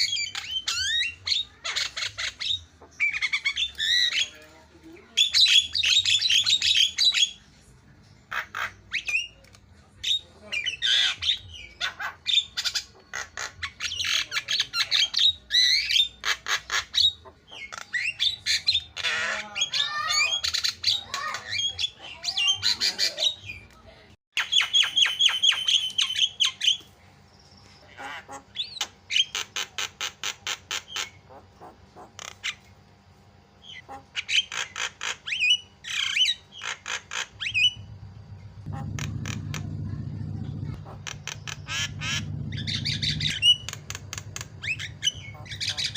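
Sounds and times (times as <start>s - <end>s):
low hum: 37.4s - 45.9s.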